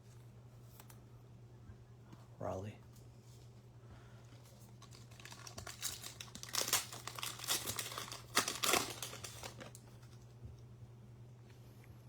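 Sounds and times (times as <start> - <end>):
plastic wrapper tearing and crinkling: 4.8 - 10.1.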